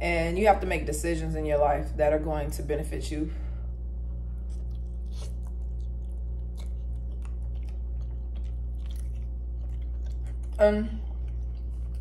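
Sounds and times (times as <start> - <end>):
steady low hum: 0.0 - 12.0
person chewing with wet smacks: 4.1 - 12.0.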